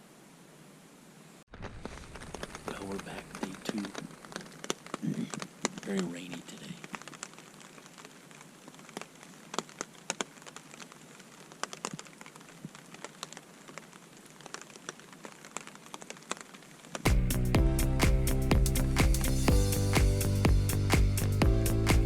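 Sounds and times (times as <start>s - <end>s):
rain falling: 1.4s - 22.0s
music: 17.1s - 22.0s.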